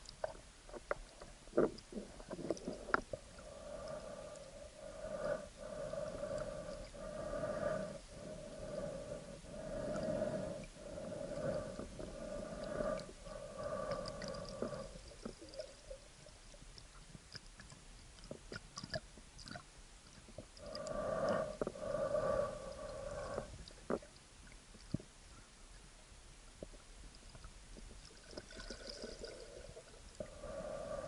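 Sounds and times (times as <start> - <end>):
hard breathing through a snorkel: 1.9 - 16.0, 20.6 - 23.6, 28.6 - 31.0.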